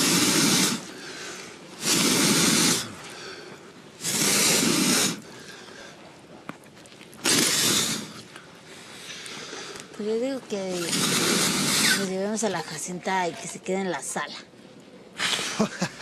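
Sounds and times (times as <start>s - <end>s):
blown whooshes of breath: 0.0s - 6.2s, 7.2s - 10.0s.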